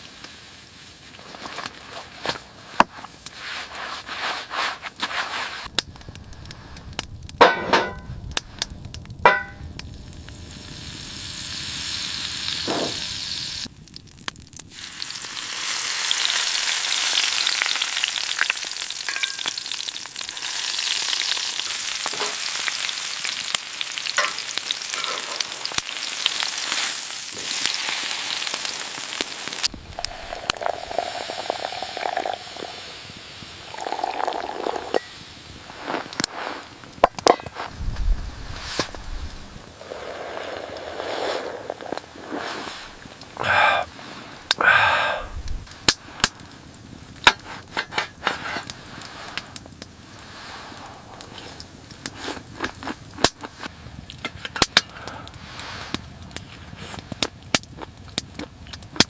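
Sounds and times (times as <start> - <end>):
utensils clinking against pan: 9.3 - 9.6, 19.1 - 19.6, 22.1 - 22.4, 24.2 - 25.3
steak sizzling in a pan: 10.1 - 35.4.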